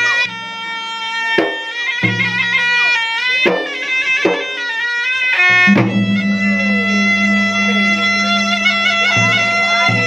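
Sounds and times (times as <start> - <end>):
reed pipe melody: 0.0 - 10.0
drum strokes: 5.4 - 10.0
sharp drum hits: 5.6 - 8.6
steady low drone: 5.7 - 10.0.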